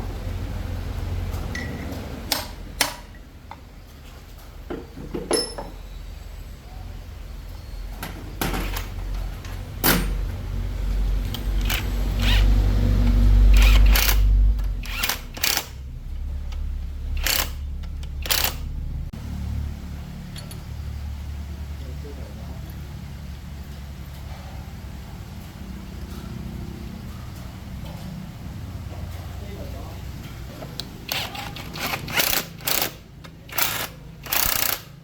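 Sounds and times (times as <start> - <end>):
low steady rumble: 0.0 - 34.7
metal tools clanking: 1.4 - 3.7, 4.7 - 6.0, 7.9 - 10.3.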